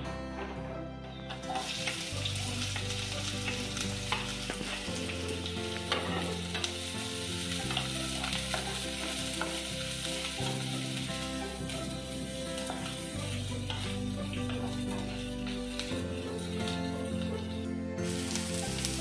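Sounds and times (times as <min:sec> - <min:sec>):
onions sizzling in hot oil: 0:01.3 - 0:19.0
wooden spatula scraping pan: 0:10.4 - 0:17.6.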